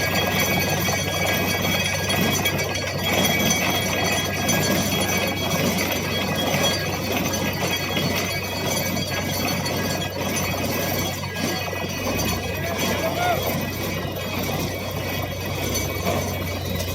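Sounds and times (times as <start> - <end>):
low engine hum: 10.4 - 16.9.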